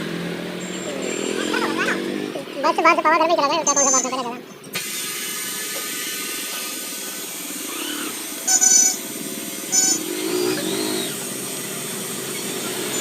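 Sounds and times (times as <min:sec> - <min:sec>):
road traffic passing: 0:00.0 - 0:13.0
vehicle horn honking: 0:03.6 - 0:04.2, 0:08.5 - 0:09.0.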